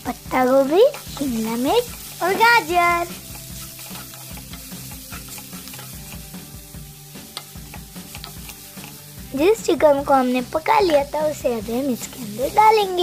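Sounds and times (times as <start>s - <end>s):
vegetables sizzling in hot oil: 0.0s - 13.0s
wooden spatula stirring: 0.8s - 6.3s, 7.3s - 9.3s.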